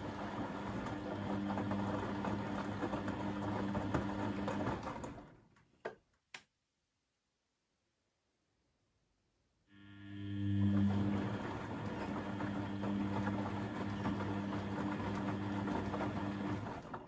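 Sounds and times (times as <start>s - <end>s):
washing machine humming and rattling: 0.0s - 5.5s, 10.2s - 17.0s.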